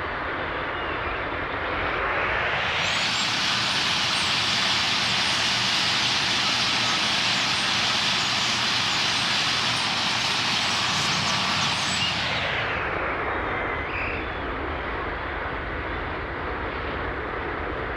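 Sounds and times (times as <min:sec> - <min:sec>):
flock of birds chirping: 0:02.8 - 0:12.6.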